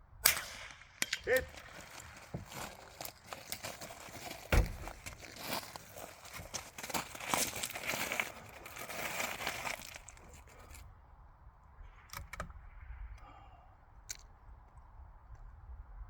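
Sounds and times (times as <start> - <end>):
clothing and gear rustling: 1.5 - 10.8.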